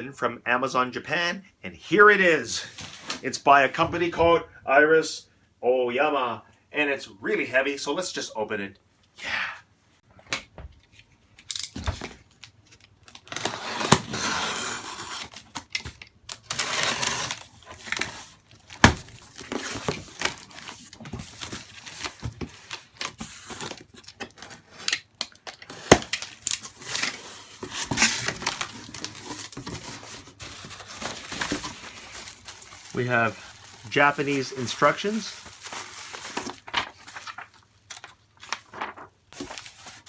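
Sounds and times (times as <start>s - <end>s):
cardboard rustling: 11.9s - 40.0s
packing tape tearing: 13.0s - 38.2s.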